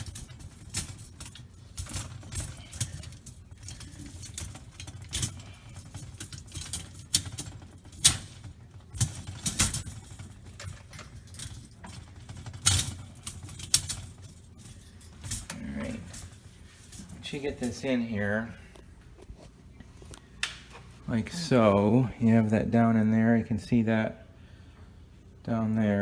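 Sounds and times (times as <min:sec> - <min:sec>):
dishwasher rack rattling: 0:00.0 - 0:18.5.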